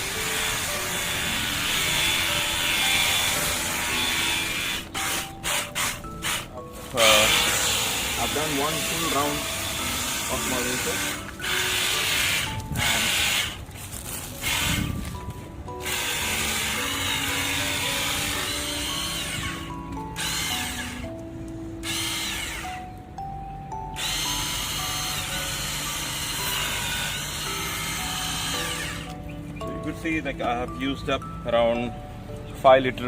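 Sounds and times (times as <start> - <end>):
pressure washer pump spraying: 0.0 - 13.6, 14.3 - 15.0, 15.8 - 21.1
background music: 0.0 - 33.0.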